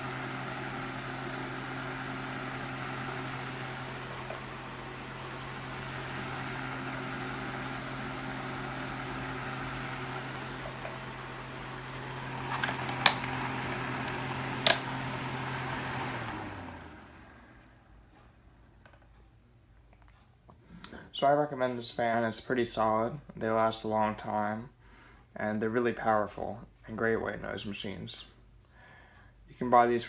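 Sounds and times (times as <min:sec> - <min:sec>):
fan motor winding down: 0:00.0 - 0:18.4
desk fan running: 0:00.0 - 0:24.5
fan switch clicks: 0:14.6 - 0:15.0.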